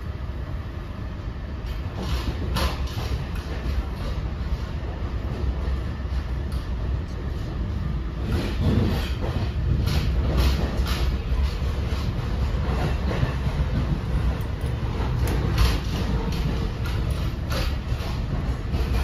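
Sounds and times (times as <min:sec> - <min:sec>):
wheels rumbling on rails: 0:00.0 - 0:19.0
sharp track clacks: 0:08.2 - 0:19.0.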